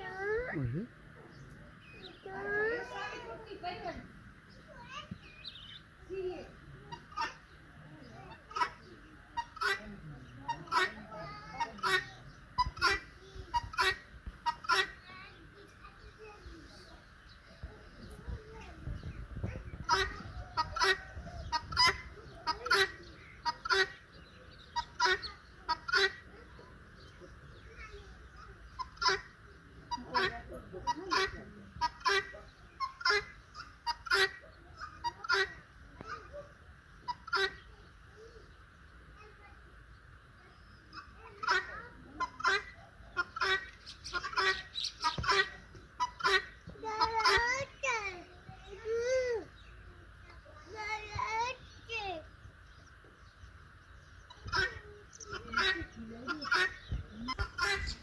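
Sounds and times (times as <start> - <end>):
turkey calling: 6.8 - 7.6, 8.3 - 15.1, 19.5 - 38.5, 40.8 - 48.0, 54.1 - 58.0.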